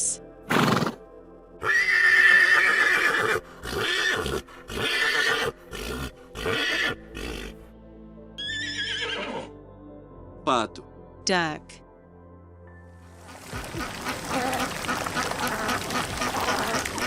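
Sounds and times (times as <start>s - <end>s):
background music: 0.0s - 17.0s
horse neighing: 1.6s - 7.6s, 8.4s - 9.5s.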